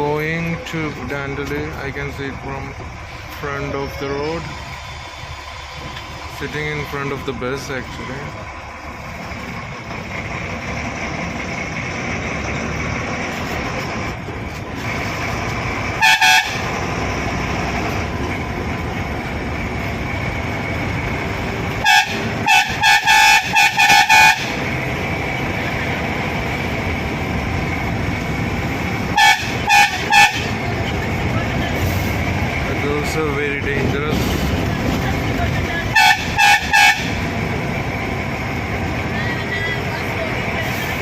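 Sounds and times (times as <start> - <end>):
bus engine running: 0.0 - 41.0
bus horn honking: 15.9 - 16.9, 21.6 - 24.7, 29.0 - 32.0, 35.2 - 37.4.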